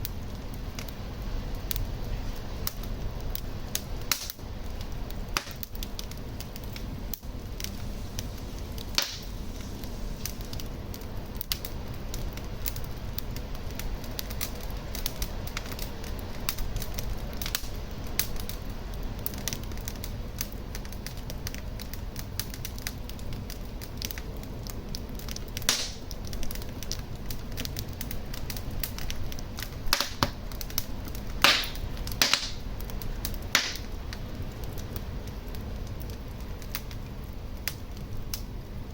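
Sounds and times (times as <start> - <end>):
fire crackling in fireplace: 0.0 - 38.9
fire popping: 0.0 - 38.9.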